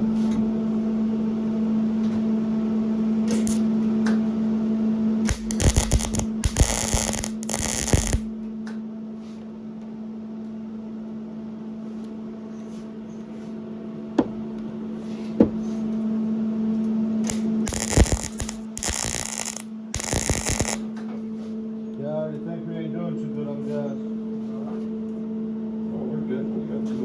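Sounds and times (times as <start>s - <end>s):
steady electrical hum: 3.3s - 3.6s, 5.3s - 8.5s, 17.3s - 20.9s
welding crackle: 3.4s - 3.6s, 5.3s - 8.3s, 17.3s - 20.9s
sharp clicks: 5.3s - 8.3s, 17.3s - 20.8s.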